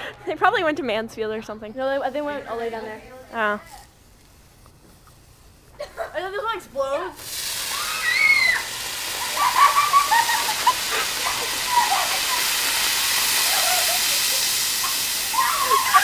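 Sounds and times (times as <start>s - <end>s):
firework hissing: 7.1s - 16.0s.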